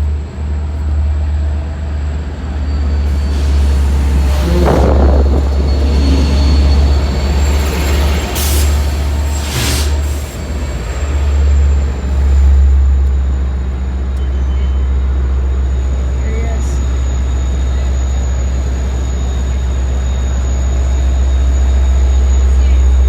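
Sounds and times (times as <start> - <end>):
train rumbling: 0.0 - 23.0
air hisses: 3.1 - 7.1.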